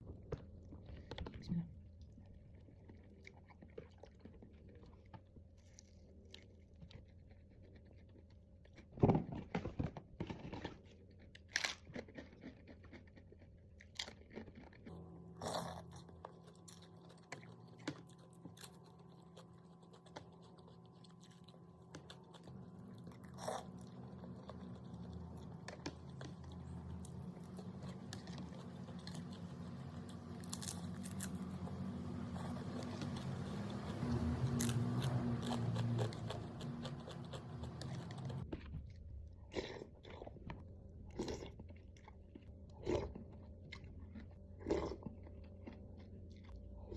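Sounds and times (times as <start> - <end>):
chewing and crunching food: 0.0 - 46.9
low hum: 14.9 - 44.5.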